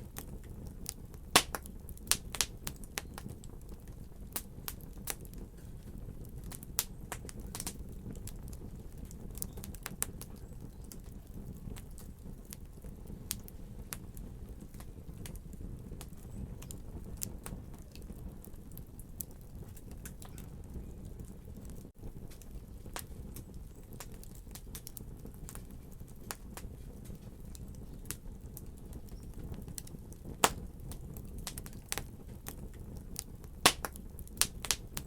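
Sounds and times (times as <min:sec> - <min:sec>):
fire pops and snaps: 0:00.0 - 0:35.0
low rumble of flames: 0:00.0 - 0:35.0.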